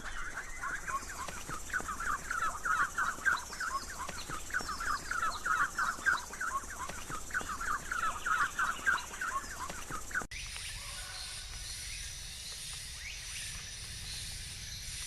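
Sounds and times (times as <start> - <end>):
birds chattering calls: 0.0 - 15.0.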